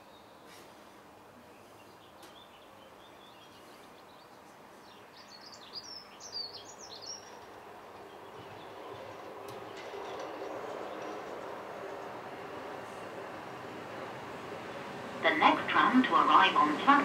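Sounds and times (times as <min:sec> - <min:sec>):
steady outdoor background: 0:00.0 - 0:17.0
tram rumbling on track: 0:00.0 - 0:17.0
bird chirping: 0:01.5 - 0:11.3.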